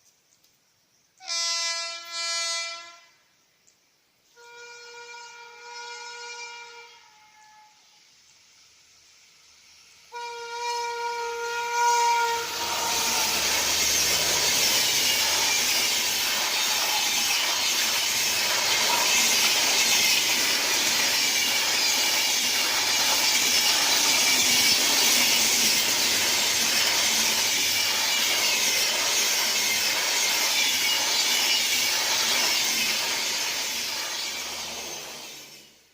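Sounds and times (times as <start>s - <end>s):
train horn: 1.2s - 3.2s, 4.3s - 8.0s, 10.1s - 14.1s
train passing at speed: 6.0s - 35.9s
wheels clattering over rail joints: 12.6s - 35.7s.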